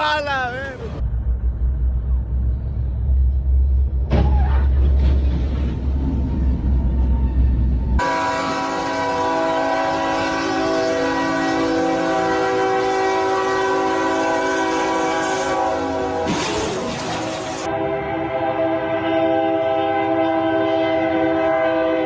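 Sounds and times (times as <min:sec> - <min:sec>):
locomotive air horn: 0:08.0 - 0:22.0.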